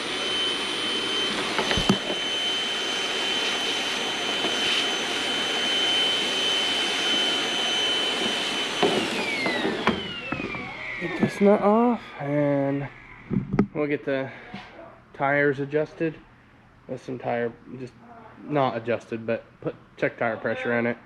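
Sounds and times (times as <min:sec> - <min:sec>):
electric motor whining: 0:00.0 - 0:13.7.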